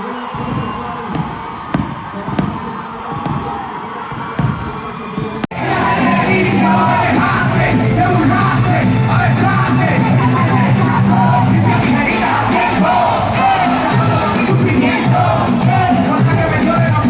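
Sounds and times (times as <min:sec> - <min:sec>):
crowd yelling and singing along: 0:00.0 - 0:17.0
reggaeton music over a pa: 0:05.5 - 0:17.0.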